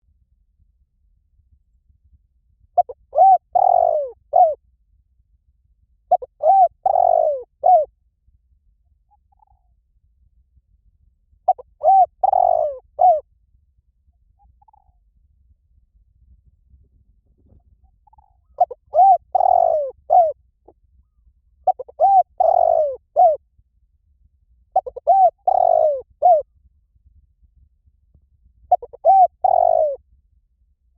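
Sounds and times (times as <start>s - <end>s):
dove cooing: 2.8s - 4.6s, 6.1s - 7.9s, 11.5s - 13.2s, 17.4s - 20.4s, 21.0s - 23.4s, 24.8s - 26.4s, 28.7s - 30.0s.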